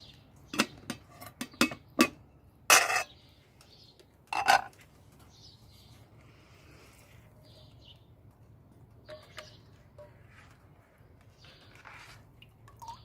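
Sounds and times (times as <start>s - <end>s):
pots and utensils clattering: 0.5s - 3.1s, 4.3s - 4.7s.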